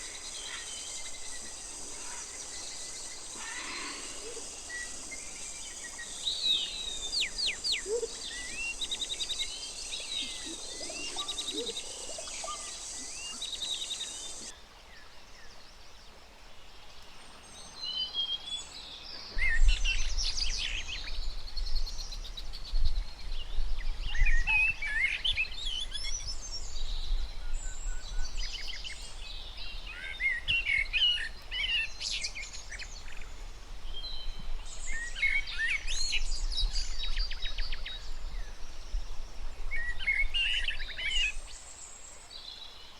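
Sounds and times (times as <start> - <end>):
birds chirping: 0.0 - 14.5
steady high hiss: 0.0 - 21.3, 23.7 - 42.9.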